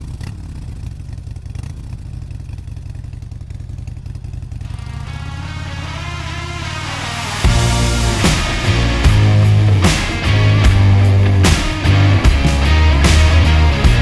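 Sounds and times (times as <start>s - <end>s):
motorcycle engine rumbling: 0.0s - 14.0s
music: 5.0s - 14.0s.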